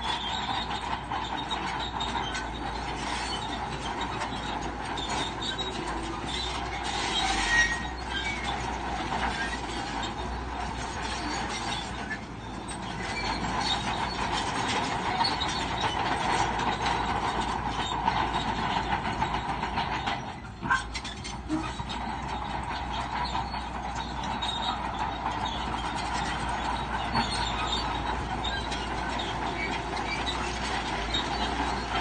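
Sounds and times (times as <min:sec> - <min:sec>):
bulldozer diesel engine: 0:00.0 - 0:32.0
steel tracks clattering squealing: 0:00.0 - 0:32.0.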